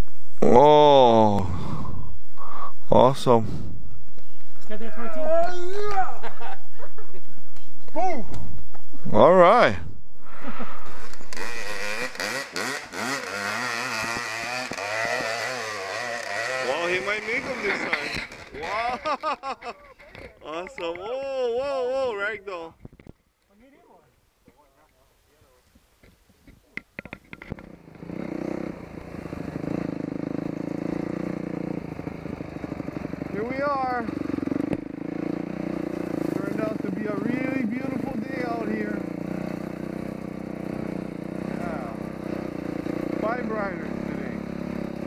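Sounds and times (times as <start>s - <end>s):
dirt bike engine revving: 8.5s - 19.2s, 27.5s - 45.0s.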